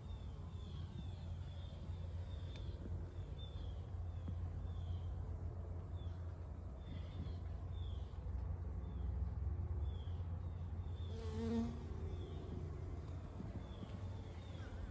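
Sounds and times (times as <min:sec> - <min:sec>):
low steady hum: 0:00.0 - 0:14.9
bee buzzing: 0:11.1 - 0:12.1.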